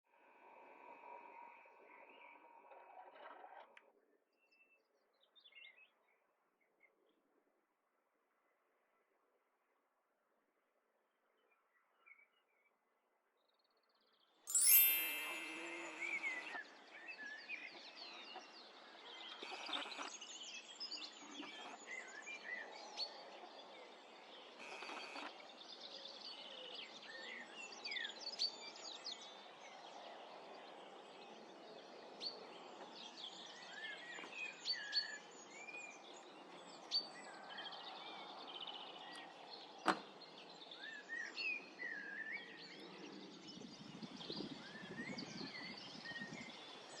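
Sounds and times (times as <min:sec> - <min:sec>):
brief ringing tone: 0:14.5 - 0:16.6.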